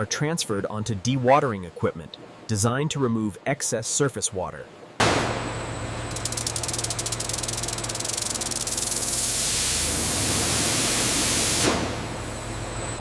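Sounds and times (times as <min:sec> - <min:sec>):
machinery humming: 0:05.0 - 0:13.0
fast even rattle: 0:06.1 - 0:09.1
water hissing: 0:06.2 - 0:12.2.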